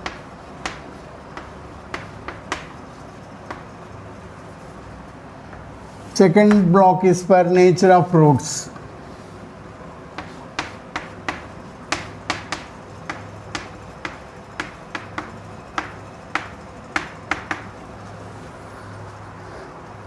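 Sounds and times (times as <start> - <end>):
writing tool tapping on board: 0.0 - 2.8, 3.4 - 3.8, 10.2 - 17.8.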